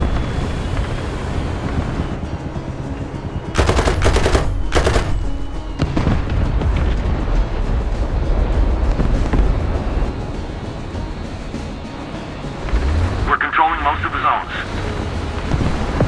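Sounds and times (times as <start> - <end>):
automatic gunfire bursts: 3.6 - 5.4.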